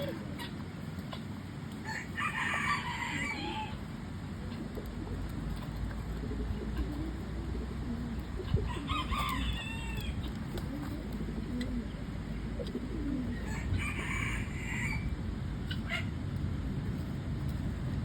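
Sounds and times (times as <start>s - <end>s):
pigeons cooing: 0.0s - 16.2s
rooster crowing: 1.8s - 3.8s, 8.7s - 10.2s, 13.3s - 15.2s.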